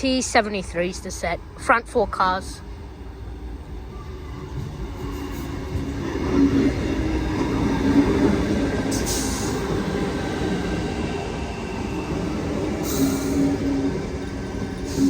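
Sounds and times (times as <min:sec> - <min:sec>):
train rumbling with low whine: 0:00.0 - 0:15.0.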